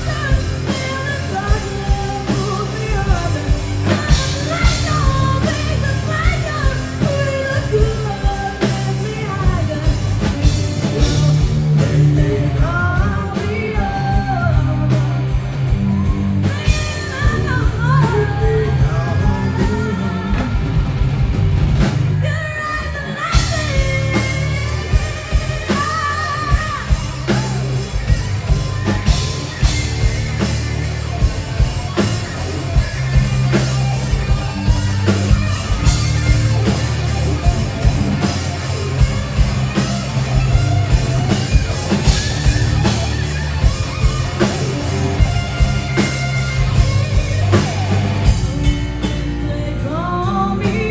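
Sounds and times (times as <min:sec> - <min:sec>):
person singing: 0:00.0 - 0:20.8, 0:22.2 - 0:30.1, 0:46.6 - 0:50.9
bass guitar: 0:00.0 - 0:50.9
drum kit: 0:00.0 - 0:50.9
electric guitar: 0:00.0 - 0:50.9.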